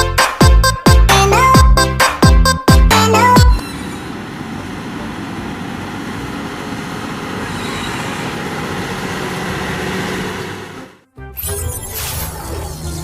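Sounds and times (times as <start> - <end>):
vehicle noise: 3.0 - 11.0.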